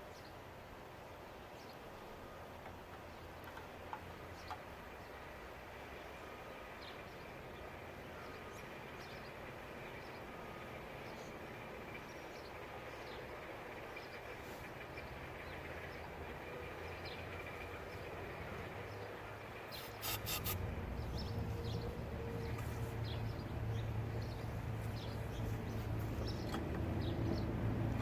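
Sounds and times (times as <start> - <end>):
small birds chirping: 16.8 - 28.0
sharp clicks: 19.8 - 20.6
low steady rumble: 20.6 - 28.0.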